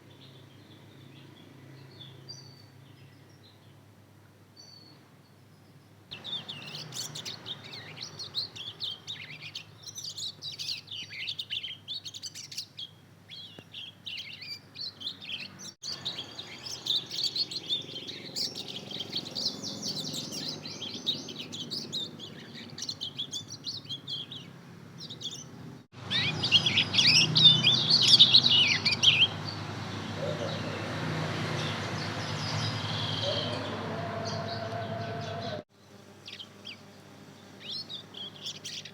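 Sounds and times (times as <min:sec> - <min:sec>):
bird chick twittering: 0:06.2 - 0:12.7, 0:13.6 - 0:29.6, 0:31.9 - 0:35.6.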